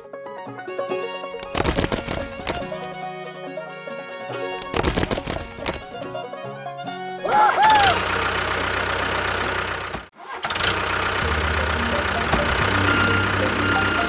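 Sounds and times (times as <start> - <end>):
small engine humming: 7.0 - 14.0.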